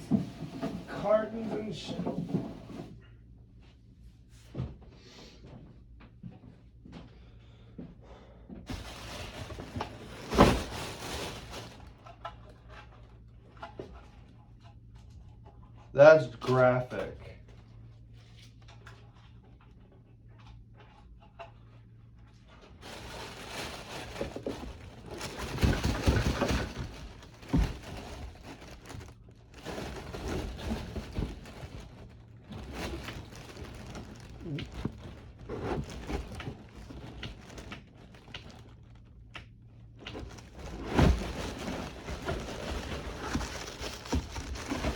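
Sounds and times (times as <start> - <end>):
cardboard rustling and crunching: 0.0 - 2.9, 8.7 - 12.2, 22.8 - 39.2, 39.9 - 44.9
packaging knocks: 22.8 - 38.7, 40.1 - 44.9.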